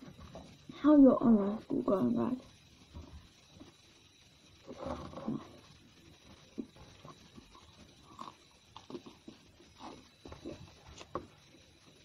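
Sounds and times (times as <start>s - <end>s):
person chewing food: 7.6s - 11.2s.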